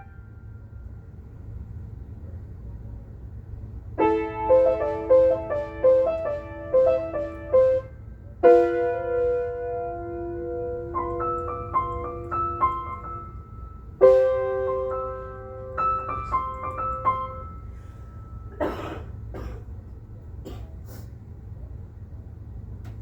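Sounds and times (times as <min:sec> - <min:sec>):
piano playing: 0:00.0 - 0:00.5, 0:04.0 - 0:18.6
person coughing: 0:18.5 - 0:19.8, 0:20.4 - 0:21.0.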